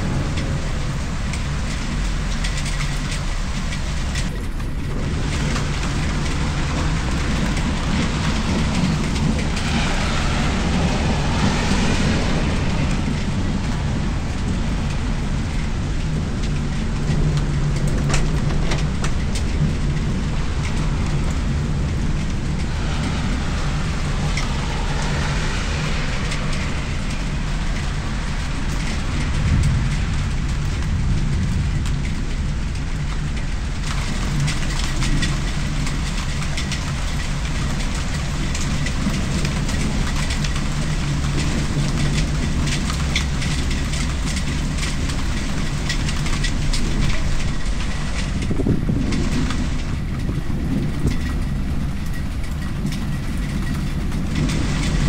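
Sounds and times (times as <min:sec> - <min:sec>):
rain pattering on surfaces: 0:00.0 - 0:55.0
car swishing past on wet street: 0:06.4 - 0:15.8, 0:20.4 - 0:30.2.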